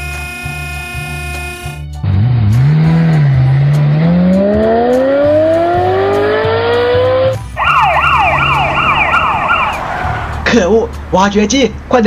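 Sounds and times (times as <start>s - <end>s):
car engine revving: 2.1s - 11.9s
police siren wailing: 4.0s - 10.5s.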